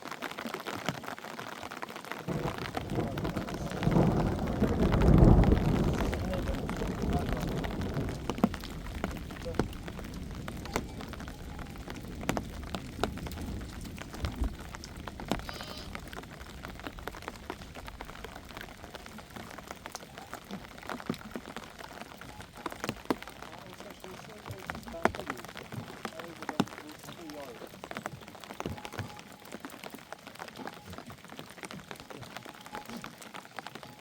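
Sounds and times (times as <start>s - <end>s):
rain falling: 0.0s - 34.0s
raindrops tapping a surface: 0.0s - 34.0s
low wind rumble: 2.3s - 25.3s.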